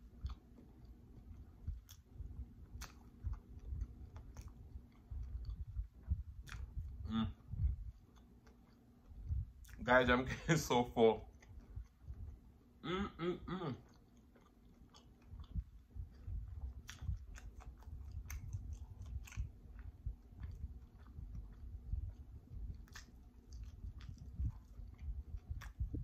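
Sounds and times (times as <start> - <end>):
person chewing food: 0.0 - 9.9, 10.6 - 26.0
person humming: 12.8 - 13.8.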